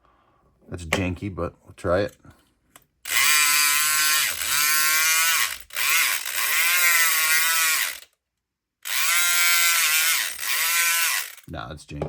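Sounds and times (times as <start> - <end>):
electric pick gun motor buzzing: 3.1 - 8.1, 8.8 - 11.5.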